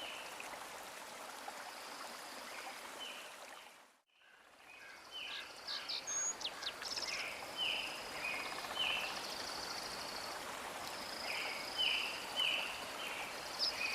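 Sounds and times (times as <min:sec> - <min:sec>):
steady background hiss: 0:04.6 - 0:13.9.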